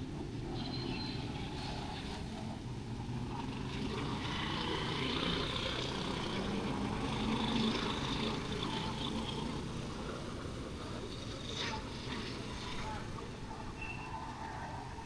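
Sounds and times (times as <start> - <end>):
street traffic passing: 3.4 - 13.2.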